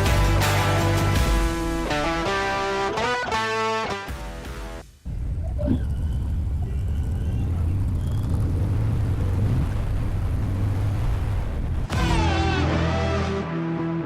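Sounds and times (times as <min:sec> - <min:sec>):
motorcycle engine rumbling: 0:05.1 - 0:11.9.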